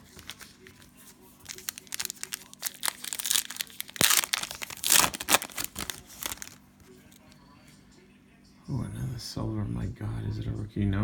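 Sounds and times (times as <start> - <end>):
cellophane wrapper crinkling and tearing: 0.0 - 6.6.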